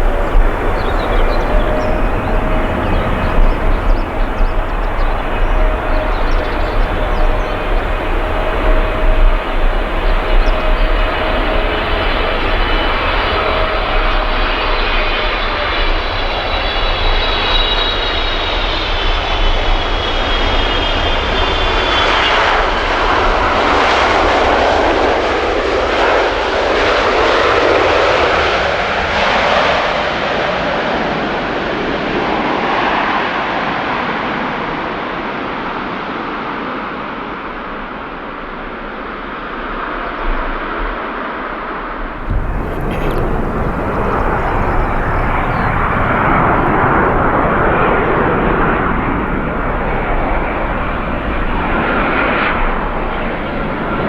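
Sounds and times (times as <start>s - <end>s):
jet airliner passing: 0.0s - 24.0s, 42.2s - 54.0s.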